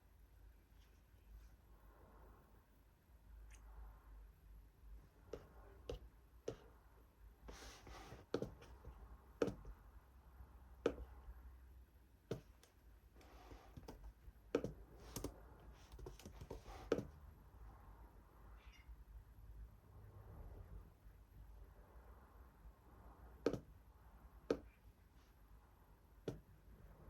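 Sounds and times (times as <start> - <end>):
light clicks and taps at desk: 8.1 - 9.8, 10.8 - 11.2, 12.3 - 17.2, 23.4 - 23.8, 24.5 - 24.7, 26.2 - 26.5.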